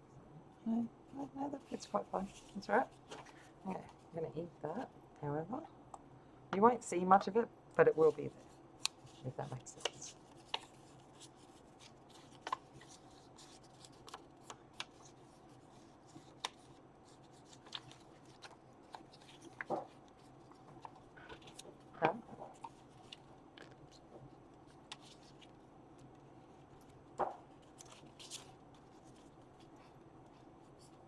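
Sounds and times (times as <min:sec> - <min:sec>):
paper rustling: 0:08.1 - 0:31.0.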